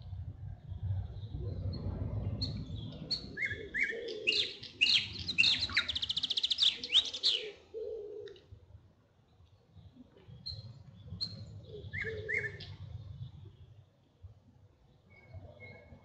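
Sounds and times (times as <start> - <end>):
low rumble: 0.0 - 3.8
songbird singing: 0.6 - 8.4, 9.3 - 13.7.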